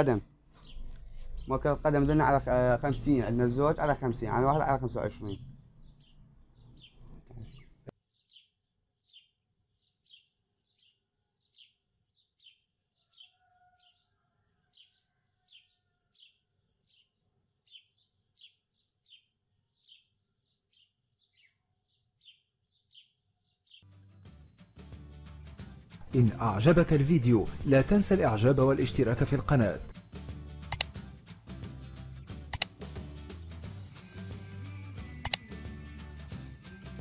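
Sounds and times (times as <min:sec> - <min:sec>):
small bird chirping: 0:00.4 - 0:02.4, 0:05.4 - 0:14.2, 0:15.6 - 0:23.9.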